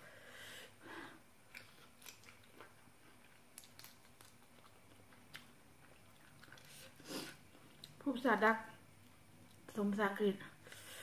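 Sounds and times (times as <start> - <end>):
chewing with mouth clicks: 1.5 - 8.0.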